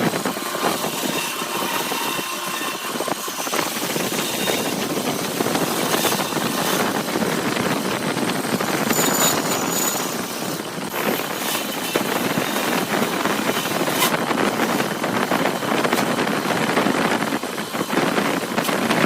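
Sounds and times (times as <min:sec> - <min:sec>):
woodturning lathe whirring: 0:00.0 - 0:19.0.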